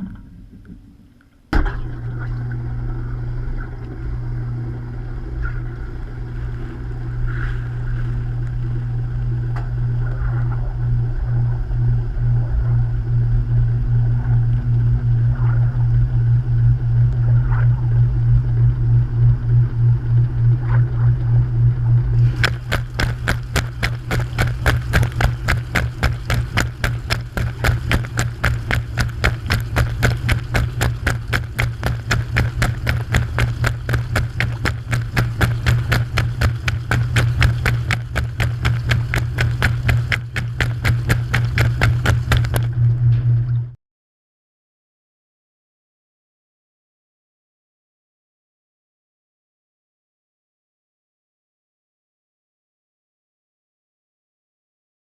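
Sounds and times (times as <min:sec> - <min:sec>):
washing machine motor hum: 0:01.6 - 0:43.8
fast even clicking: 0:22.4 - 0:42.8.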